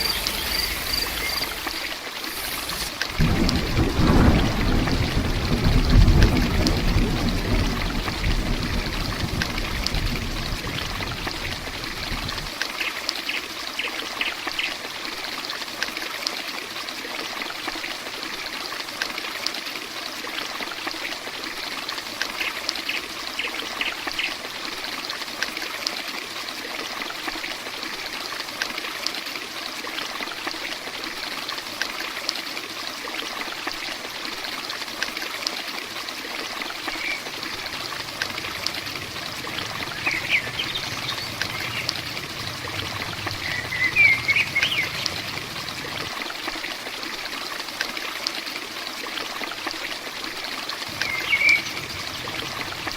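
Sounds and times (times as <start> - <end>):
heavy rain: 0.0 - 12.7, 36.2 - 48.0, 49.4 - 52.9
low rumble: 37.3 - 46.2, 50.9 - 52.9.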